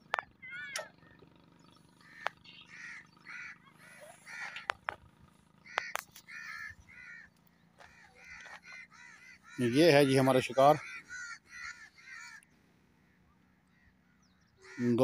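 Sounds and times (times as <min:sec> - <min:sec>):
bird harsh caw-like calls: 0:00.1 - 0:15.0.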